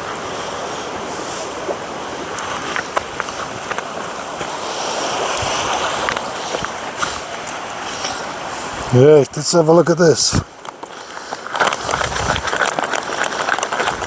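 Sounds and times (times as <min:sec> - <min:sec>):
river rushing: 0:00.0 - 0:14.0
sharp crackles: 0:09.4 - 0:14.0.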